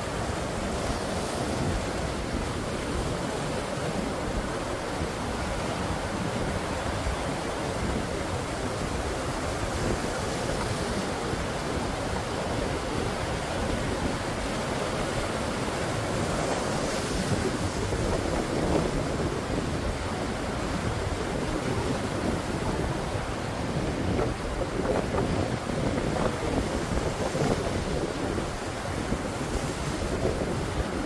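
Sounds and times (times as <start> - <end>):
waves: 0.0 - 31.0
wind: 0.0 - 31.0.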